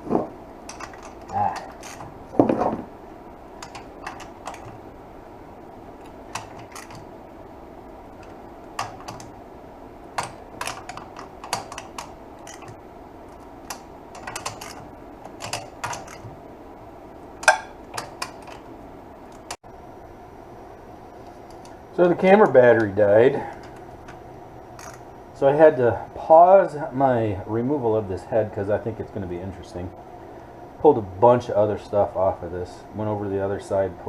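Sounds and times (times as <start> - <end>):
hand tools clicking and tapping metal: 0.6 - 2.8, 3.6 - 4.8, 6.0 - 7.1, 8.2 - 9.4, 10.1 - 16.4, 17.4 - 18.7.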